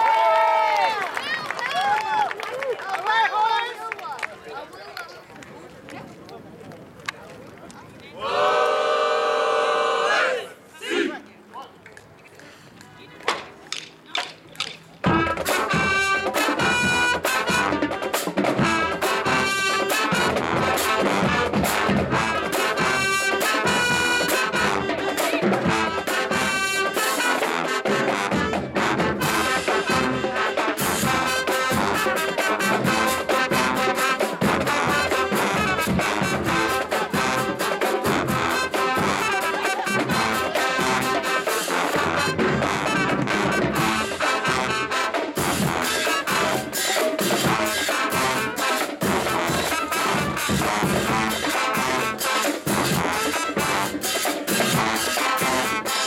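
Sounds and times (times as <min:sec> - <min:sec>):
brass trumpets and trombones: 0:08.2 - 0:11.2, 0:15.0 - 0:56.0
drumline beat: 0:13.2 - 0:56.0.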